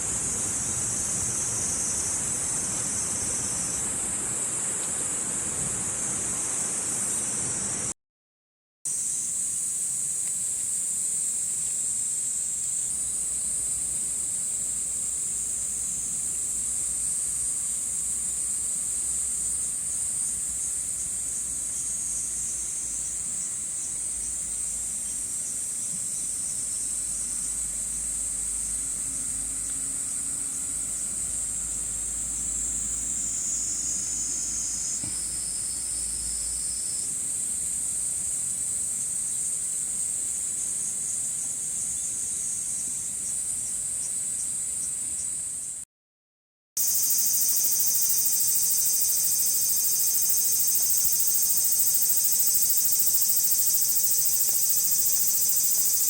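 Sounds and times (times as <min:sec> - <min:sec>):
insects trilling: 0:00.0 - 0:07.9, 0:08.9 - 0:45.8, 0:46.8 - 0:56.0.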